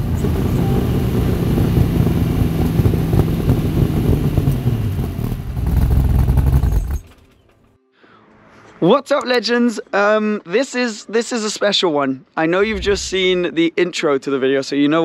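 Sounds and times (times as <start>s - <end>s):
engine running hard: 0.0s - 6.6s.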